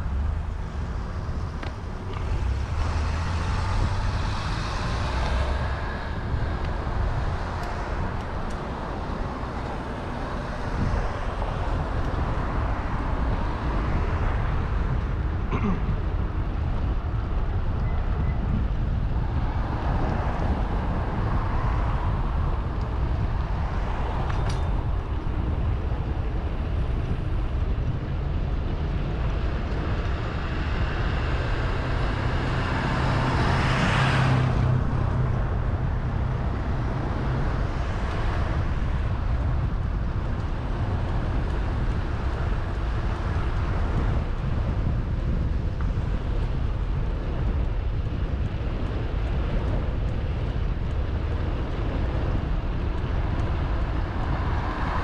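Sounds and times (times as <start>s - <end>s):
car passing: 0.0s - 15.0s, 29.2s - 55.0s
wind and road noise: 0.0s - 55.0s.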